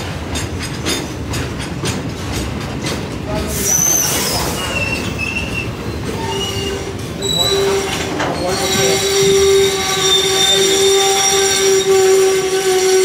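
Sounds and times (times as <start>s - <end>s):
wheels squealing on rails: 3.3s - 13.0s.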